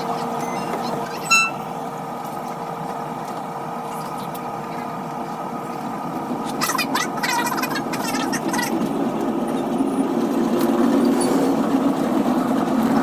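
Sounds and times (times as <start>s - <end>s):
train running noise from inside: 0.0s - 13.0s
high-pitched train horn toot: 1.2s - 1.7s.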